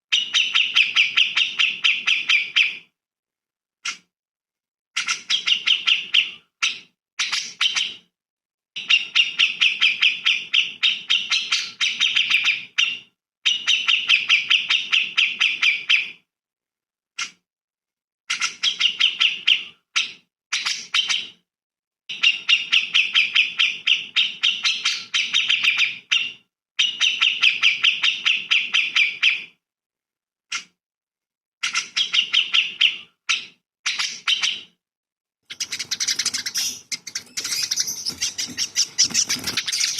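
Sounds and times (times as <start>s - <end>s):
songbird chattering song: 35.5s - 39.9s.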